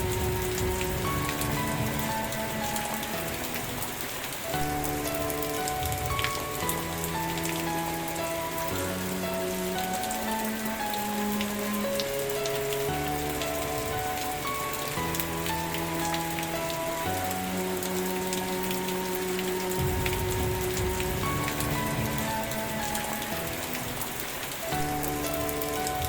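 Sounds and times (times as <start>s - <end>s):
rain falling: 0.0s - 26.0s
soft sustained music notes: 0.0s - 26.0s.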